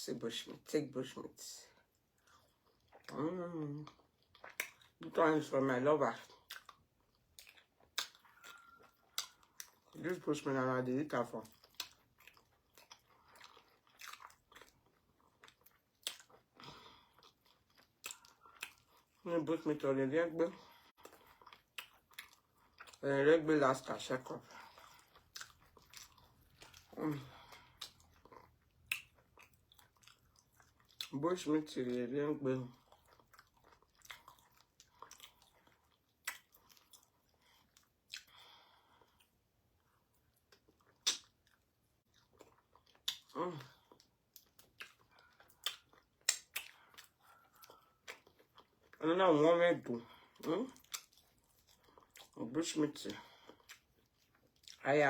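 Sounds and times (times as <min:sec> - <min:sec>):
faint chewing: 0:01.7 - 0:05.5, 0:06.1 - 0:19.3, 0:20.4 - 0:49.2, 0:49.8 - 0:54.9
mouth clicks and smacks: 0:36.2 - 0:37.1, 0:40.8 - 0:41.6, 0:42.8 - 0:43.4, 0:44.4 - 0:48.3.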